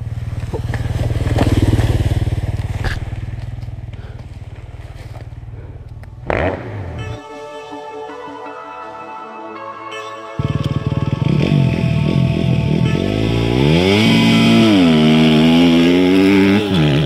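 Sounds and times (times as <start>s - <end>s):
dirt bike engine idling: 0.0s - 7.0s, 10.4s - 17.0s
electronic music: 6.3s - 15.5s.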